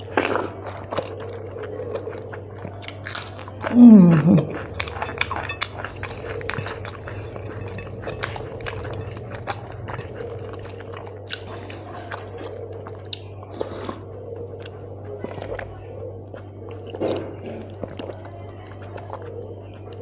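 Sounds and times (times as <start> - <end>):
wet chewing and lip-smacking: 0.0 - 20.0
person humming: 3.7 - 4.6.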